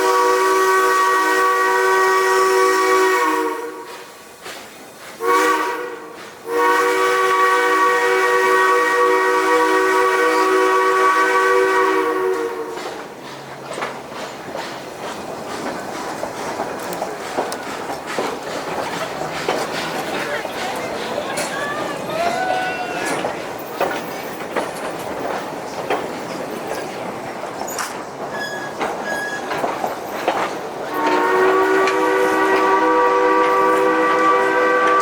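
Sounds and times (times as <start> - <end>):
steam whistle chord: 0.0 - 3.9, 5.2 - 12.7, 30.9 - 35.0
train clattering on track: 0.0 - 35.0.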